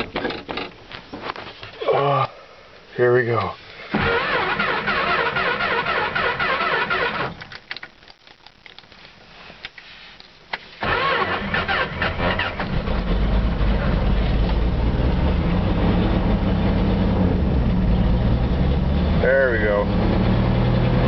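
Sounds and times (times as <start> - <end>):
starter motor cranking: 4.0 - 7.4, 10.8 - 12.8
engine running: 10.8 - 21.0.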